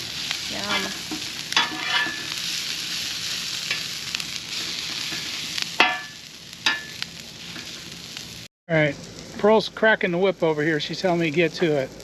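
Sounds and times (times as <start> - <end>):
vegetables sizzling on a griddle: 0.0 - 12.0
metal spatula clinking on griddle: 1.6 - 2.3, 5.8 - 7.0.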